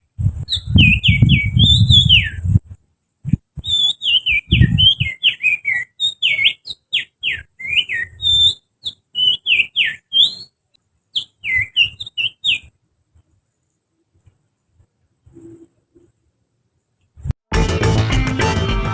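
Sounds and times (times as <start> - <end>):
finger whistling bird song: 0.5 - 2.5, 3.6 - 10.6, 11.2 - 12.7.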